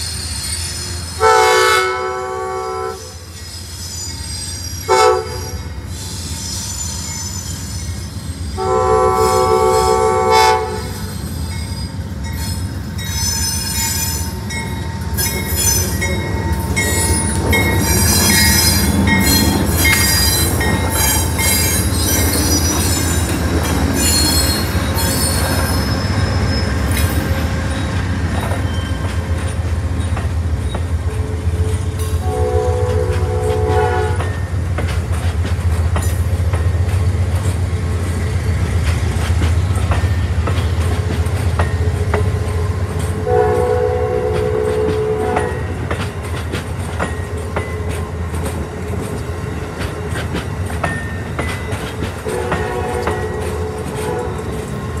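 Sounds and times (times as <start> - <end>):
passing train rumble: 0.0 - 55.0
train horn blasts: 1.2 - 3.3, 4.8 - 5.8, 8.6 - 11.0, 31.3 - 34.4, 43.2 - 45.8, 52.2 - 54.8
high-pitched wheel squeals: 3.2 - 8.6, 10.8 - 14.5, 16.7 - 23.3, 24.0 - 29.1.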